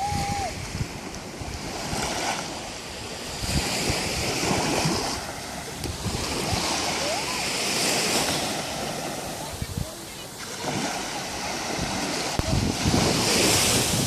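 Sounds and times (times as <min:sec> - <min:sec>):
sea waves breaking on beach: 0:00.0 - 0:14.0
wind gusting across microphone: 0:00.0 - 0:14.0.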